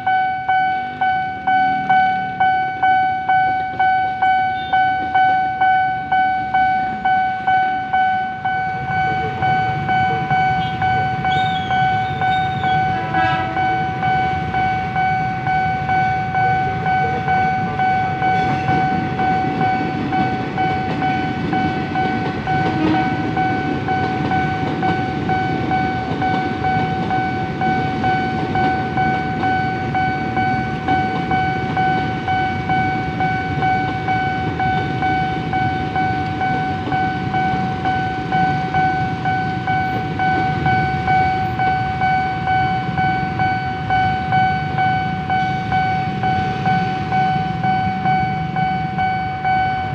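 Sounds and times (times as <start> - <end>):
level-crossing warning bell: 0.0 - 49.9.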